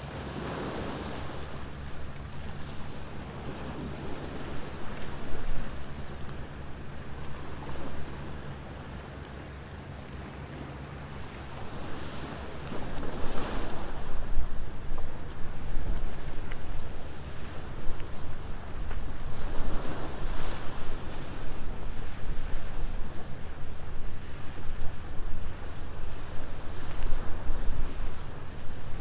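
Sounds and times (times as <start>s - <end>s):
ocean waves washing ashore: 0.0s - 29.0s
wind rumbling on microphone: 11.2s - 29.0s.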